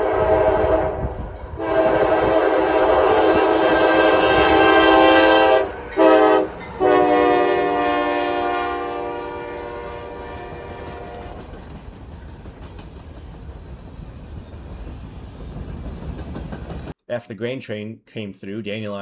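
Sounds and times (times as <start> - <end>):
locomotive air horn: 0.0 - 11.4
train cars rumbling and clattering: 0.0 - 17.0.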